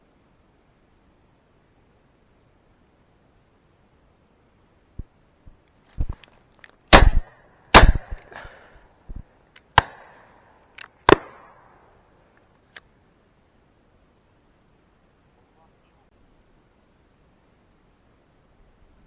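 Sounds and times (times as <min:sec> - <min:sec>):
loud shotgun shots: 0:06.9 - 0:08.8, 0:09.8 - 0:10.4, 0:11.0 - 0:11.8
distant gunshots: 0:06.9 - 0:09.2, 0:09.8 - 0:11.9.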